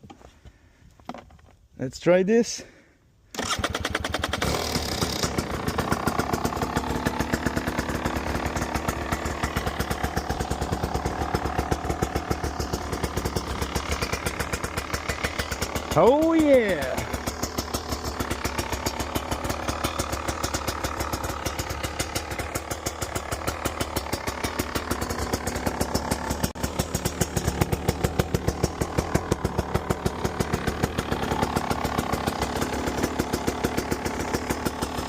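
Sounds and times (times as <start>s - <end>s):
two-stroke engine idling: 3.4s - 35.0s.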